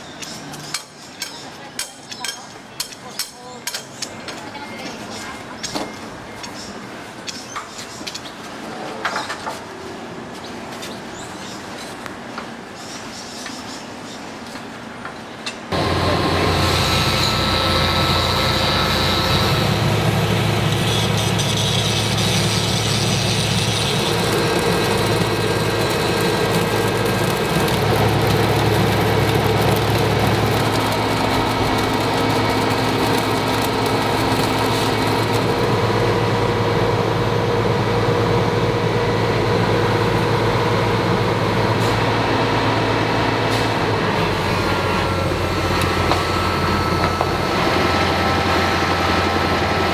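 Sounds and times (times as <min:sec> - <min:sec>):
heavy machinery engine hum: 0:15.7 - 0:49.9.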